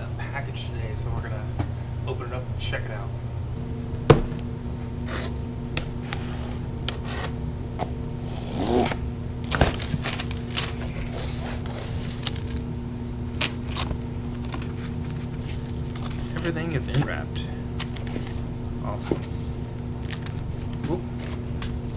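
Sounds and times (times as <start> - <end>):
steady low hum: 0.0 - 21.9
cardboard and tape scraping: 8.3 - 12.6.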